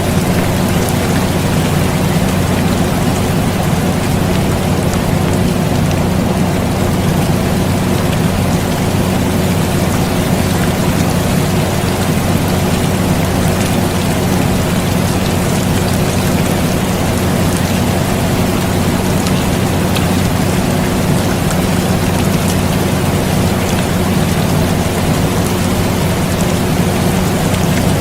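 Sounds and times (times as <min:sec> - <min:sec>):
air conditioner hum: 0:00.0 - 0:28.0
steady rain: 0:00.0 - 0:28.0.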